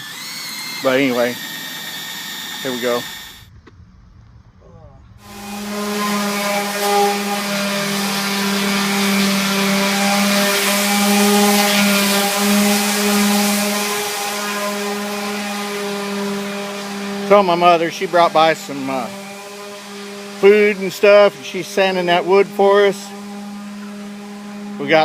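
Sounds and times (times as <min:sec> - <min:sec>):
electric paint mixer whining: 0:00.0 - 0:03.5, 0:05.2 - 0:25.0.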